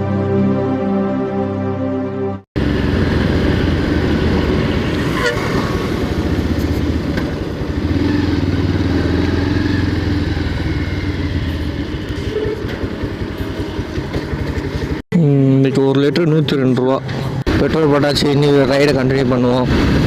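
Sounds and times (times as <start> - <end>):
motorcycle engine running: 2.6 - 15.0.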